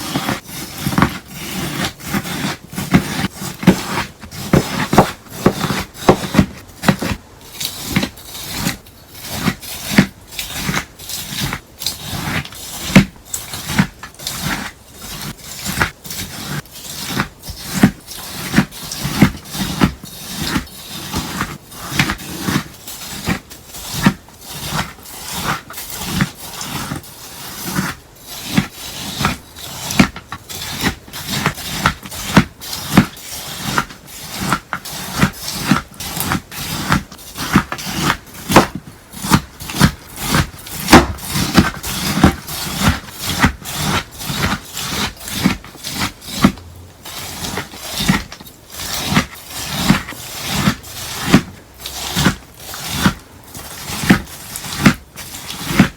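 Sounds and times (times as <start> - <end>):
slime crunching: 29.8 - 55.9.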